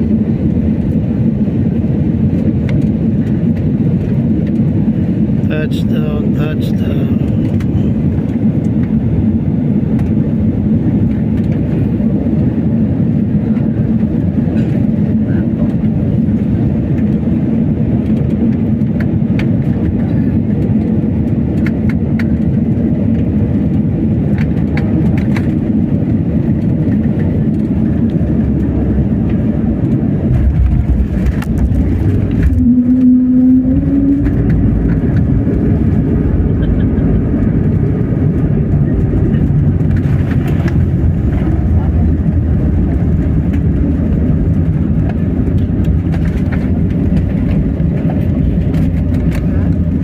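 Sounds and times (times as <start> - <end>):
heavy low rumble: 0.0 - 50.0
jet engines and airflow rushing: 0.0 - 50.0
engine tone rising: 28.3 - 46.0.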